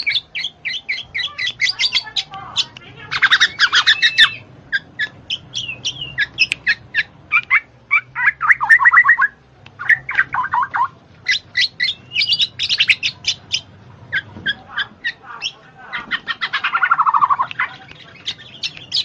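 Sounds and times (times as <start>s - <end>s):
bird chirping and trilling: 0.0s - 19.0s.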